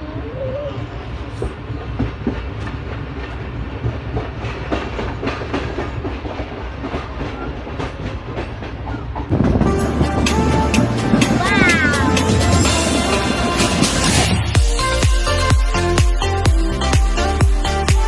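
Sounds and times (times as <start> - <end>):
train rumbling on track: 0.0 - 18.0
wheels clacking over rail joints: 0.8 - 15.5
music: 9.3 - 18.0.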